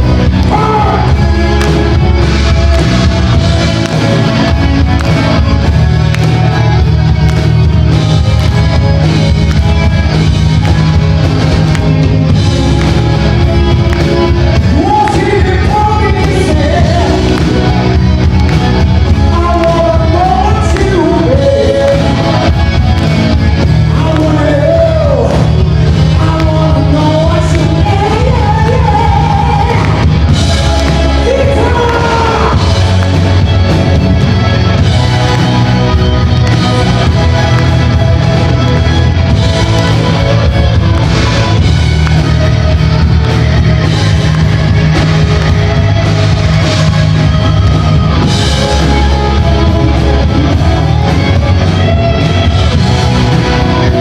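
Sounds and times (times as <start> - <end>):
live rock band playing: 0.0 - 54.0
person singing: 14.6 - 17.9, 19.1 - 22.6, 23.8 - 33.0.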